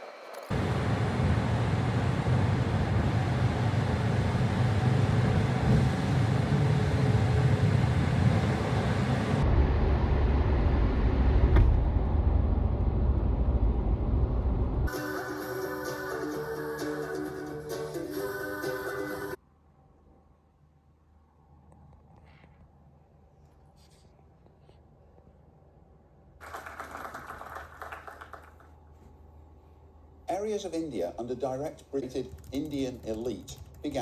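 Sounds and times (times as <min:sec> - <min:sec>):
road vehicle rumble: 0:00.5 - 0:14.9.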